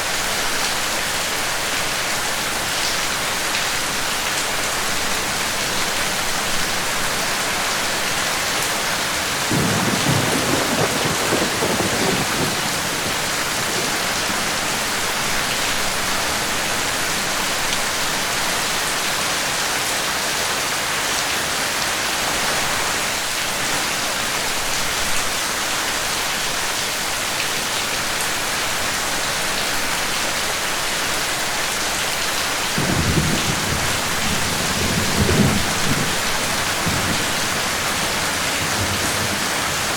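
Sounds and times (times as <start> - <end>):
steady rain falling: 0.0 - 39.9
thunder rumbling: 9.5 - 16.1, 32.8 - 39.9.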